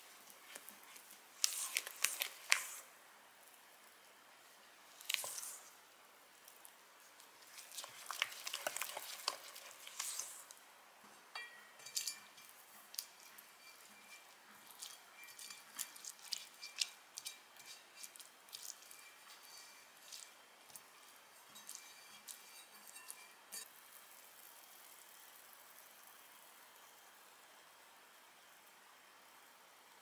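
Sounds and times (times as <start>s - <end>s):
utensils clinking and scraping bowl: 7.4s - 10.5s, 11.4s - 23.7s.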